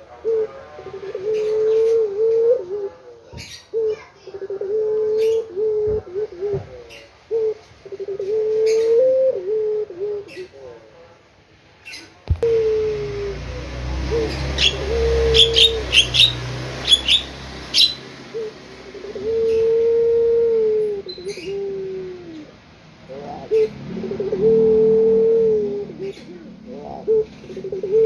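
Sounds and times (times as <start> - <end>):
dove cooing: 0.0 - 10.9, 12.3 - 28.0
small bird chirps: 14.2 - 18.1.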